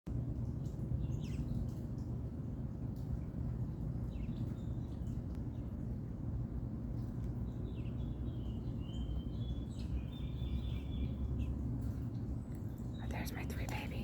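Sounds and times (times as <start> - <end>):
steady low rumble: 0.1 - 14.0
songbird chirping: 3.0 - 5.9, 6.9 - 14.0.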